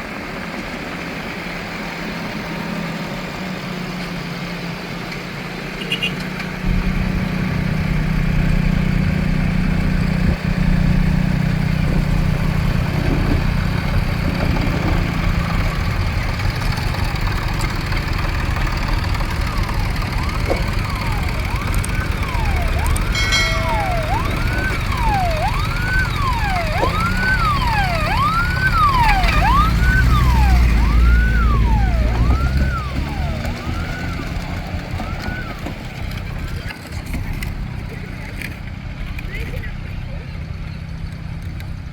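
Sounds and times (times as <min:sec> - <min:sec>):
tractor engines rumbling: 0:00.0 - 0:41.9
siren wailing: 0:15.4 - 0:36.6.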